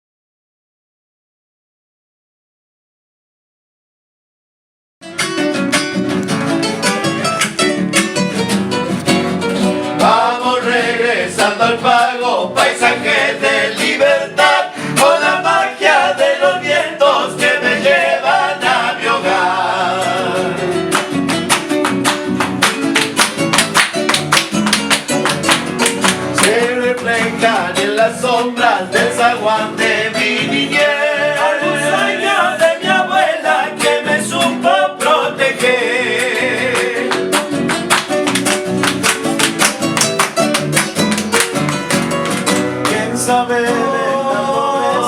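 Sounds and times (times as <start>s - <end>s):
guitar melody line: 5.0s - 45.0s
strummed acoustic guitars: 5.0s - 45.0s.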